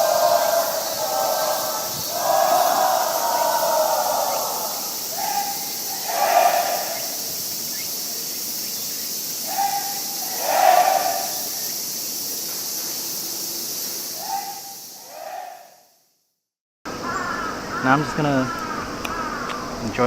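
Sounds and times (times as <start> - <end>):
crow cawing: 0.0 - 7.4, 9.4 - 11.6, 14.2 - 15.8, 17.0 - 19.8
steady high hiss: 0.0 - 16.0, 16.9 - 20.0.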